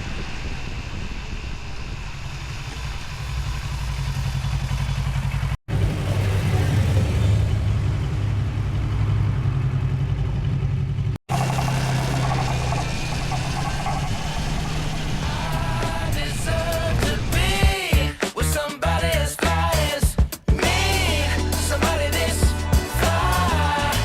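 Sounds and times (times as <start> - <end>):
motorcycle engine running: 0.0 - 17.8
wind and road noise: 0.0 - 17.8.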